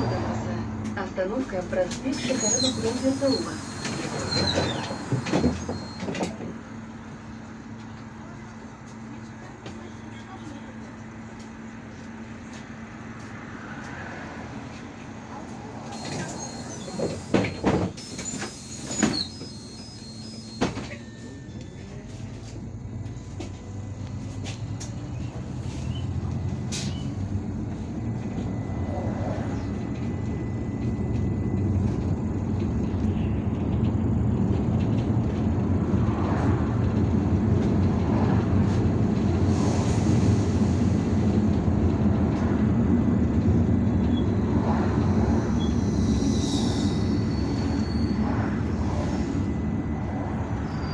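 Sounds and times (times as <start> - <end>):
bus engine rumble: 0.0 - 50.9
short air hisses: 2.1 - 6.0, 15.9 - 20.8.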